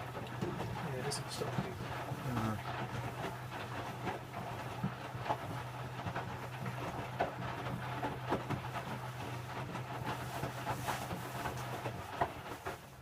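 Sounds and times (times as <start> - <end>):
drum knocking and sloshing: 0.0 - 13.0
washing machine motor hum: 0.0 - 13.0.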